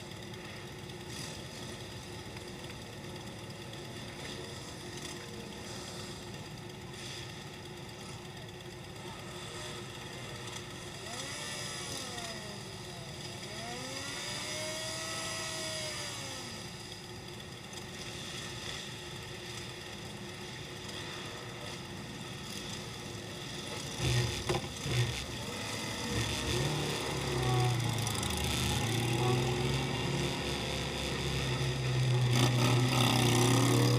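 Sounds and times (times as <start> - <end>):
motorcycle engines running: 0.0 - 33.9.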